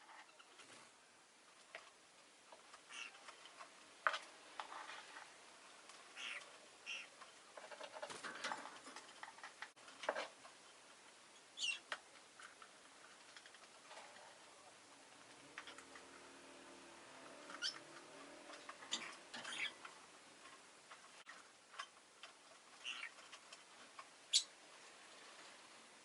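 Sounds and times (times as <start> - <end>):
lovebird chirps and clicks: 17.5 - 17.9.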